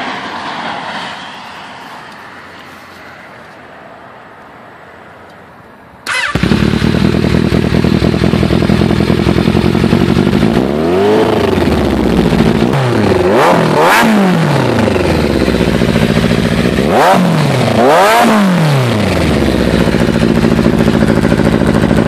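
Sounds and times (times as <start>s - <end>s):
motorcycle engine starting and running: 6.0s - 22.0s.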